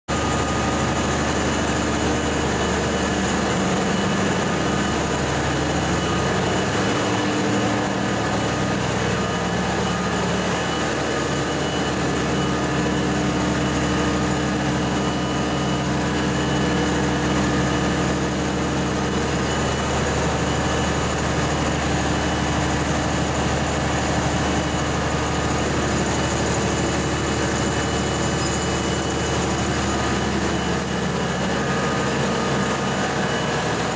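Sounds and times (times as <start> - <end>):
steady mechanical drone: 0.1 - 33.9.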